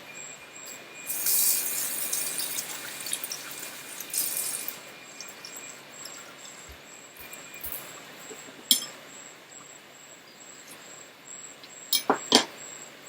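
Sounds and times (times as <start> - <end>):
hands washing under water: 1.1 - 7.9
water running from tap: 1.1 - 8.1.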